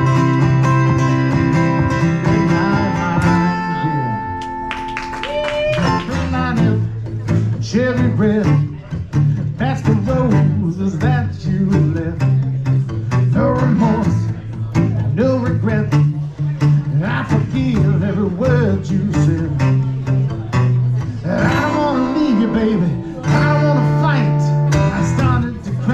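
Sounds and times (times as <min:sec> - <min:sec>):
steady bass notes: 0:00.0 - 0:05.1, 0:05.8 - 0:25.9
bending guitar melody: 0:00.0 - 0:25.9.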